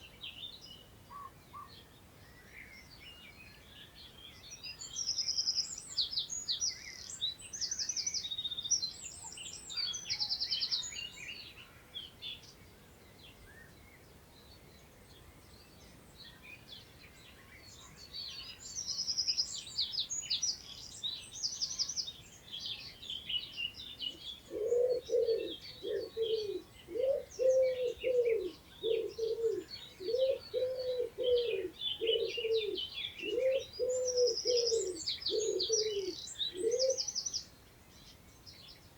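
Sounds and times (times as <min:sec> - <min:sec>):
songbirds singing and twittering: 0:00.0 - 0:38.9
low cooing call: 0:24.5 - 0:37.1.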